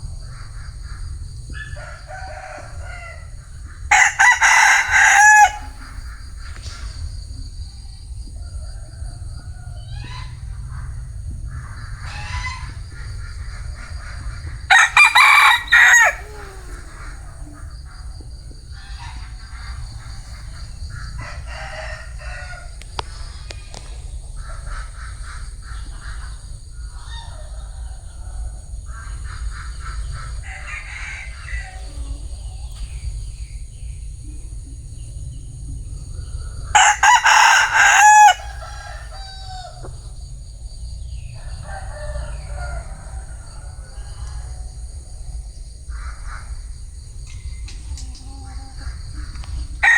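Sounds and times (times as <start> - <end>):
rooster clucking calls: 1.5 - 6.2, 14.2 - 20.6, 36.7 - 40.0
rooster crowing: 1.5 - 6.2, 14.7 - 22.9, 30.4 - 32.8, 36.6 - 40.3, 41.2 - 44.7.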